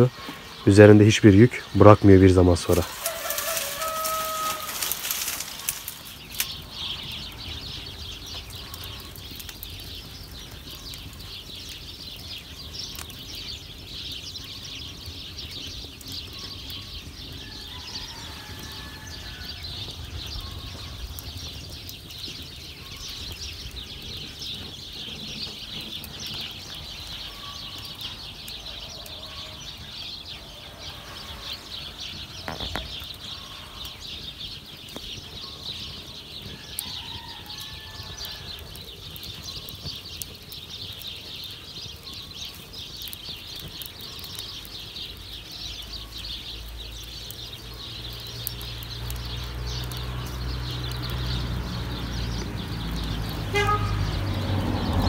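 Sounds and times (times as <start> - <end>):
light rain pattering: 0.0 - 55.0
faint chicken calls: 2.6 - 6.1, 16.3 - 21.6, 35.4 - 39.7.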